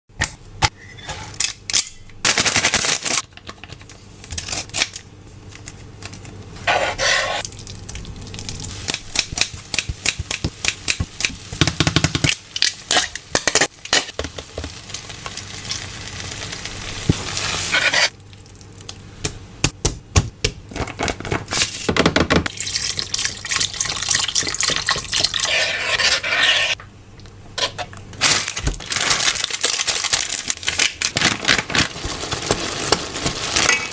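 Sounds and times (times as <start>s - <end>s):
food sizzling: 7.1s - 11.7s, 12.3s - 18.8s
stirring: 24.0s - 26.8s.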